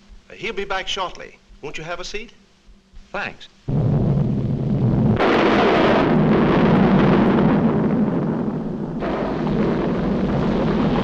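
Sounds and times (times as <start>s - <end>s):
explosive blast: 3.7s - 11.0s
heavy rumble: 3.7s - 11.0s.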